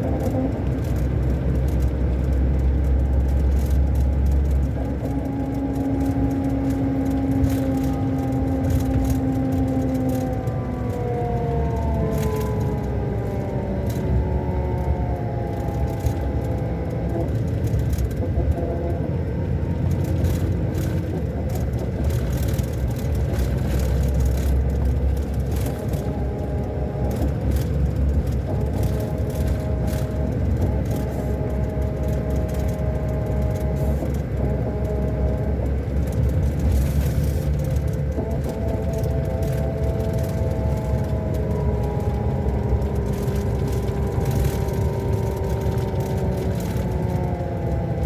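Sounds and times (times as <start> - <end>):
diesel engine rumbling with whine: 0.0 - 48.0.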